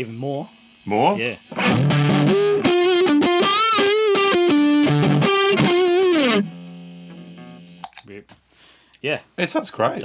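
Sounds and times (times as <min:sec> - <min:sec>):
overdriven electric guitar lead: 0:01.4 - 0:08.0.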